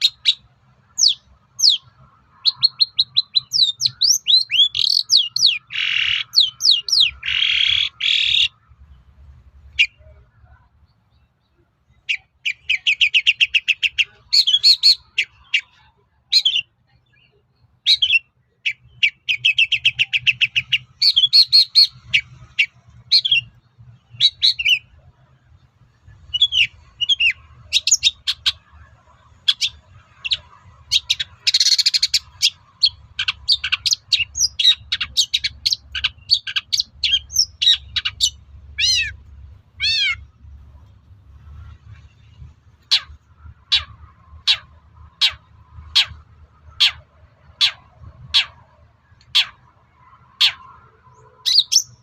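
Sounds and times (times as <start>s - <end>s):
bird song of chirps and whistles: 1.0s - 8.6s, 11.1s - 24.9s, 26.2s - 28.7s, 29.5s - 39.2s, 50.4s - 52.0s.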